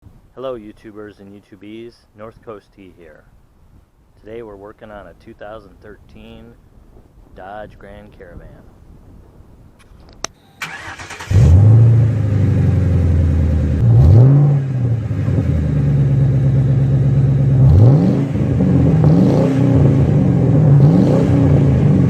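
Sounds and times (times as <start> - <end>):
car engine revving: 10.6 - 22.0.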